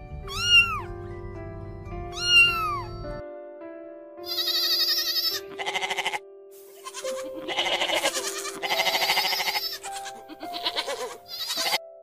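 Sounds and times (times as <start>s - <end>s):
soft background music: 0.0s - 12.0s
goats bleating: 4.3s - 6.2s, 6.8s - 11.8s.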